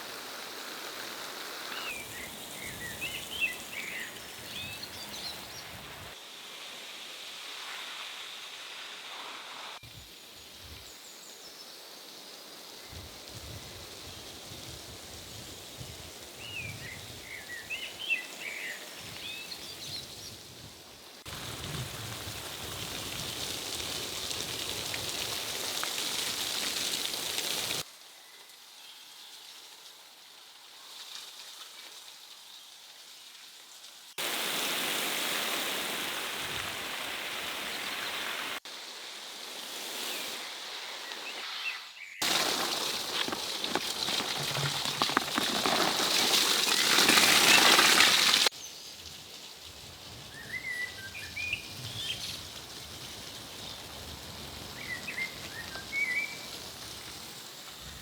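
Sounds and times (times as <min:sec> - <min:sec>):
running water: 0:21.2 - 0:27.8, 0:42.2 - 0:48.5.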